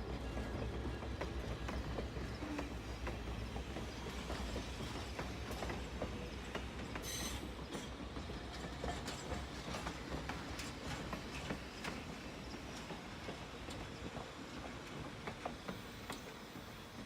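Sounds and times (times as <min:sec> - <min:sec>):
train rumbling on track: 0:00.0 - 0:17.0
high-pitched hiss or squeal: 0:07.0 - 0:07.6.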